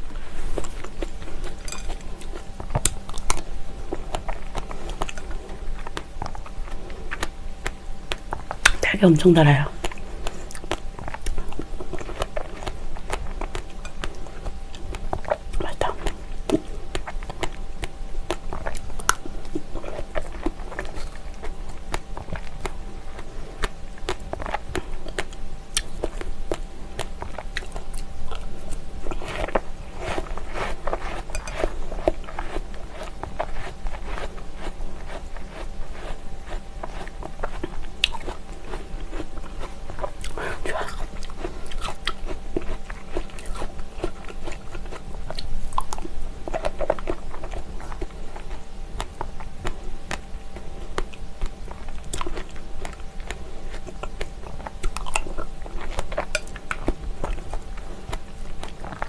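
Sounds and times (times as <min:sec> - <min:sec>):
wet chewing: 0:00.0 - 0:08.8, 0:09.5 - 0:59.0
soft mouth sounds: 0:09.7 - 0:50.2.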